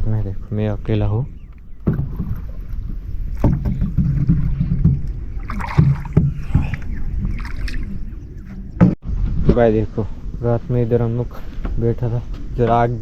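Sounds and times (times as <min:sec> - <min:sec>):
water noise: 0:00.0 - 0:10.5
boat engine rumble: 0:00.0 - 0:13.0
knocks on boat: 0:01.8 - 0:02.7, 0:03.4 - 0:06.8.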